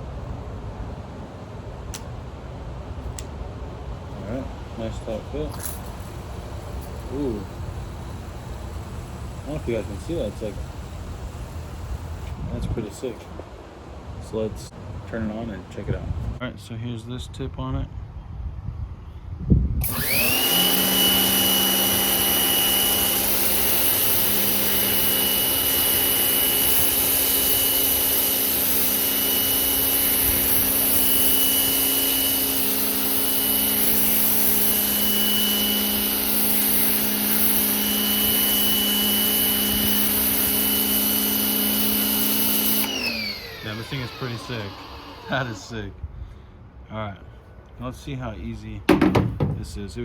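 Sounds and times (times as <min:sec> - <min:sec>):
pressure washer motor whining: 0:05.5 - 0:12.3, 0:19.8 - 0:45.8.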